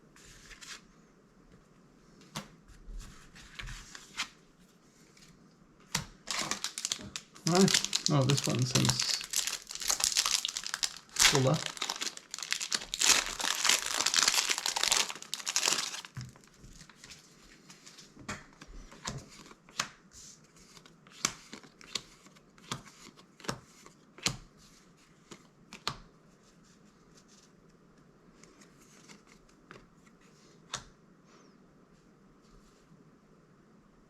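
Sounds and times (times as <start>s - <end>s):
wrapper crinkling as torn open: 6.2s - 16.5s.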